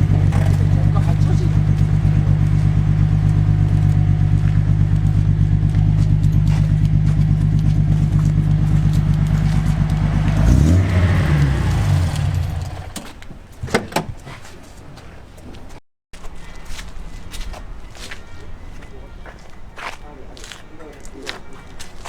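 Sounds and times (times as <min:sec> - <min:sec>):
car engine idling: 0:00.0 - 0:13.2.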